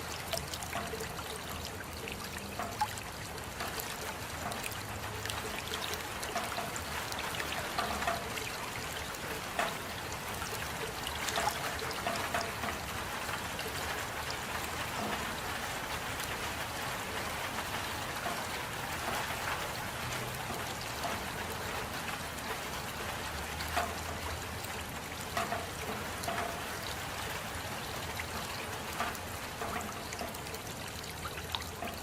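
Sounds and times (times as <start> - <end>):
drops splattering: 0.0 - 12.8
steady rain: 0.0 - 32.0
water trickling: 0.0 - 32.0.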